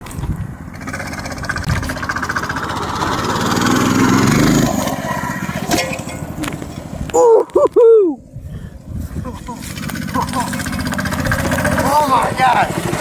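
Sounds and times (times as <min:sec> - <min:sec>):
small engine revving: 0:00.2 - 0:06.8, 0:09.5 - 0:13.0.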